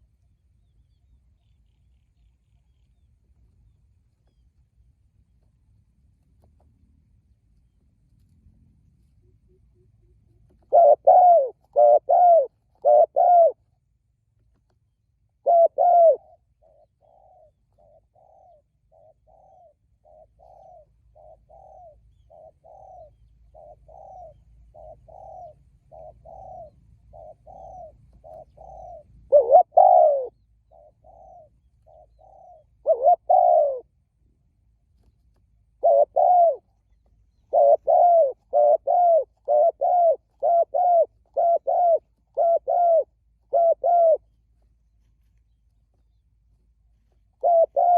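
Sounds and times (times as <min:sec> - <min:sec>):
doves cooing: 0:09.3 - 0:13.6, 0:15.3 - 0:33.9, 0:35.7 - 0:44.3, 0:47.1 - 0:47.9.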